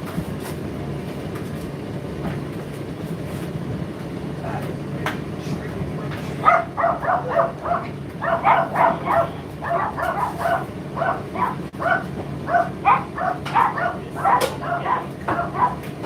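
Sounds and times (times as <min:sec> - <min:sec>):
dog barking: 0:06.4 - 0:15.9.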